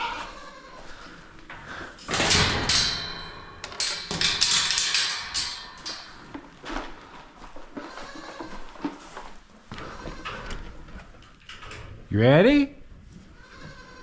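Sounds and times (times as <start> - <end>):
clattering knocks and thumps: 1.5 - 7.4.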